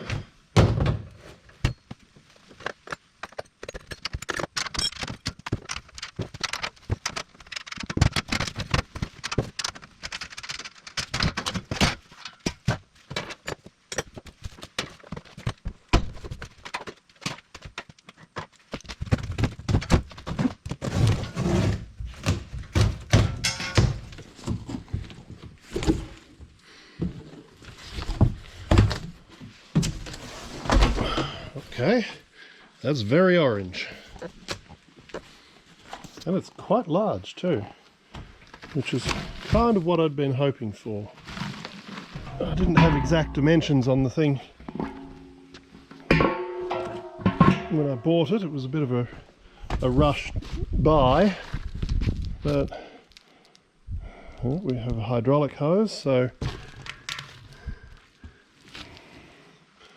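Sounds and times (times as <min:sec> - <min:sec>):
knocks and clunks: 0:02.6 - 0:26.2, 0:42.2 - 0:48.1
packaging rustling and scraping: 0:41.1 - 0:42.8.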